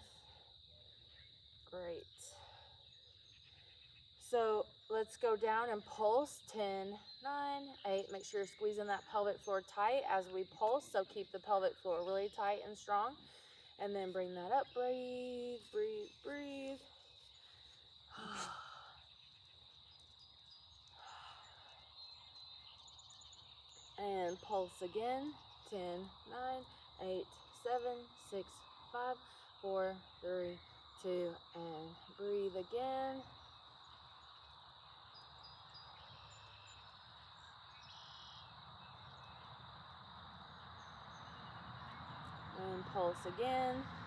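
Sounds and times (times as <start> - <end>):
crickets trilling: 0.0 - 44.0
high insect drone: 0.0 - 44.0
bird chirps: 35.0 - 39.5.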